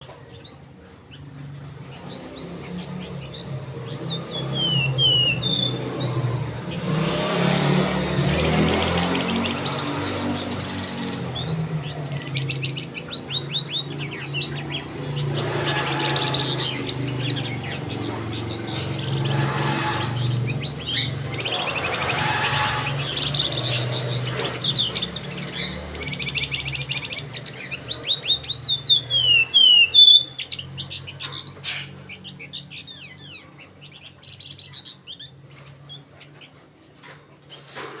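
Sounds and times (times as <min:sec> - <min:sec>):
songbird chirping: 0:00.0 - 0:38.0.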